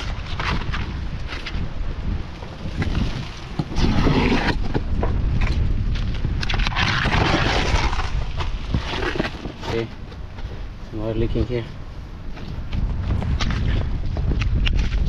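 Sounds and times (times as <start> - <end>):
scraping and rustling roofing work: 0.0 - 10.8
wind rumbling on microphone: 0.0 - 15.0.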